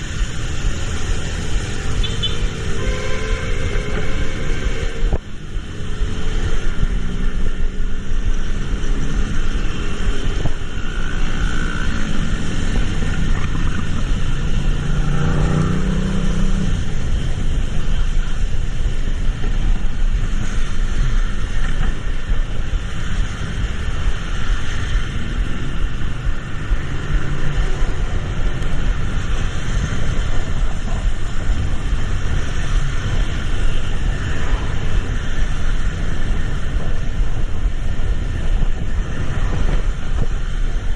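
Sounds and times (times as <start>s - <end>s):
traffic rumble: 0.0s - 40.9s
vehicle engine revving: 10.4s - 17.1s.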